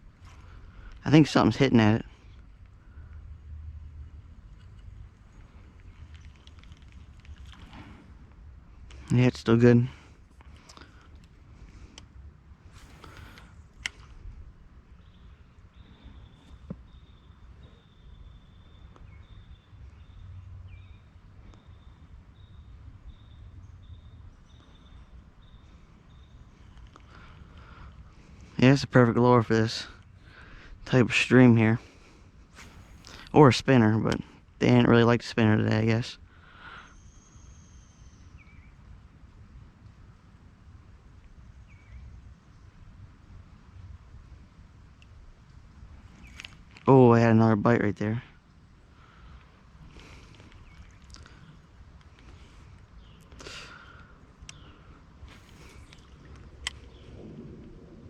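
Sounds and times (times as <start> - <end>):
low outdoor rumble: 0.0 - 58.0
faint clicks: 2.3 - 3.2, 4.5 - 9.2, 10.3 - 14.3, 26.5 - 28.6, 45.0 - 46.9, 49.3 - 57.8.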